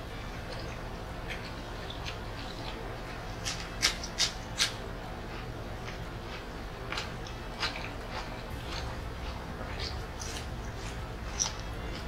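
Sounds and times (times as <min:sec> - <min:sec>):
person chewing food: 0:00.2 - 0:12.0.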